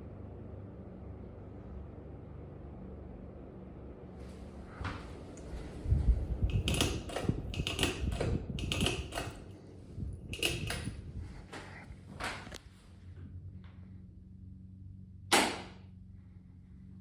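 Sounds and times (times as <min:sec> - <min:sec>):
faint steady hum: 0:00.0 - 0:17.0
low rumble: 0:04.4 - 0:17.0
sharp clicks and knocks: 0:06.4 - 0:09.6, 0:10.2 - 0:12.6, 0:15.3 - 0:15.8.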